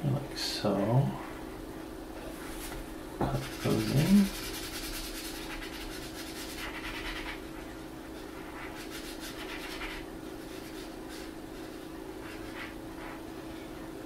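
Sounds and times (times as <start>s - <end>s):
faint steady hum: 0.0s - 14.0s
marker pen scratching on paper: 3.3s - 13.2s.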